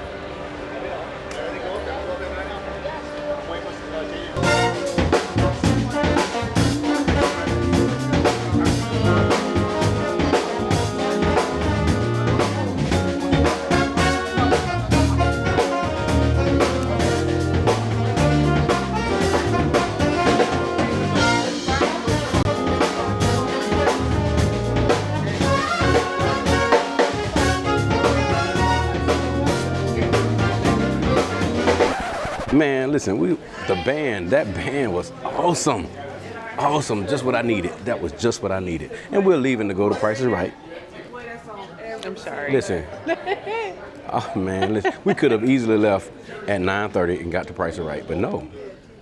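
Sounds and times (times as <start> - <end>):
live band playing: 2.6 - 32.5
trumpet and trombone: 3.2 - 32.1
drum kit: 4.4 - 32.5.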